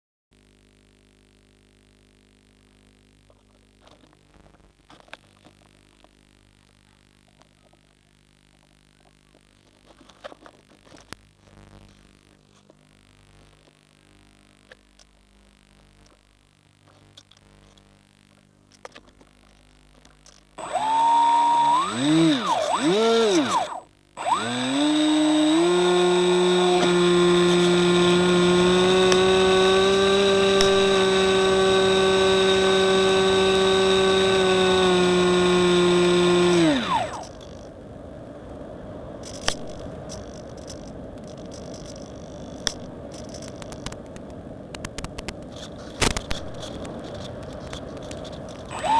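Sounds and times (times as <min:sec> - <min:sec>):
electric motor whining: 0:20.6 - 0:37.7, 0:45.5 - 0:48.9
clicks: 0:39.2 - 0:48.9.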